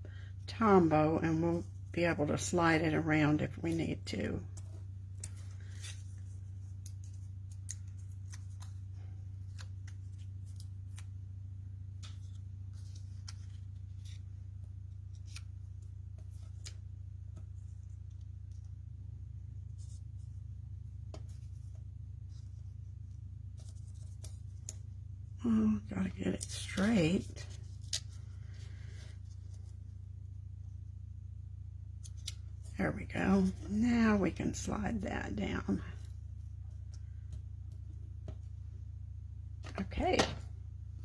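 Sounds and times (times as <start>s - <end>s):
low electrical hum: 0.0s - 41.0s
paper rustling and clicking: 4.5s - 11.2s, 11.9s - 18.6s.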